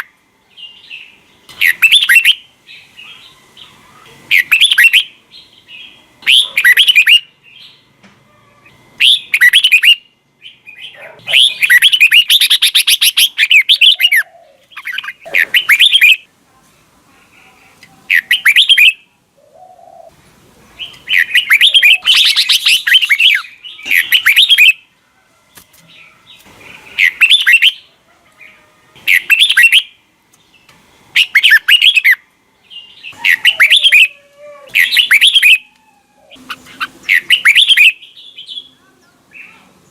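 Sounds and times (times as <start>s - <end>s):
bird singing warbled whistles: 1.6s - 2.5s, 4.3s - 5.2s, 6.2s - 7.3s, 9.0s - 10.6s, 11.3s - 14.2s, 14.8s - 16.2s, 18.1s - 19.0s, 20.8s - 24.8s, 27.0s - 27.8s, 29.1s - 30.0s, 31.2s - 32.2s, 33.2s - 34.1s, 34.8s - 35.6s, 36.4s - 38.6s.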